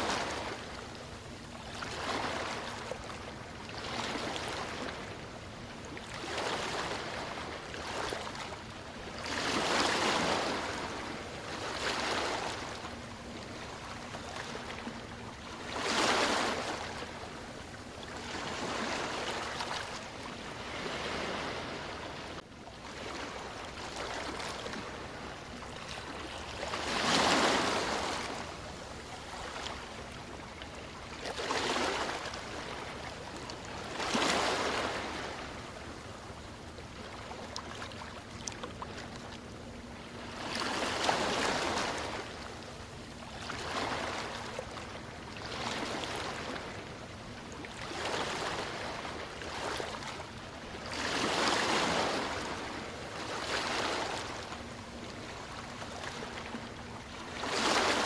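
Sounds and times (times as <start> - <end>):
ocean waves washing in: 18.2 - 22.4.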